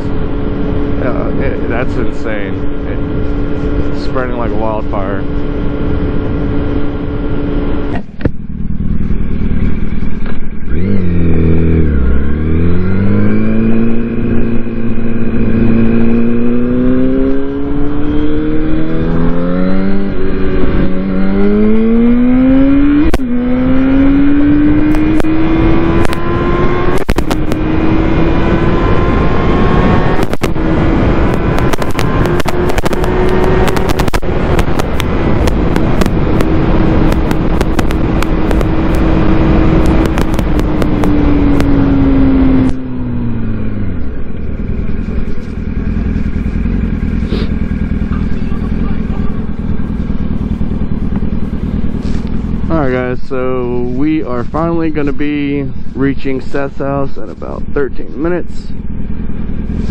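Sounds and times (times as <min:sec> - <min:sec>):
exhaust crackles: 0:00.0 - 0:59.9
motorcycle engine revving: 0:00.0 - 0:59.9
wind rush: 0:12.5 - 0:43.8.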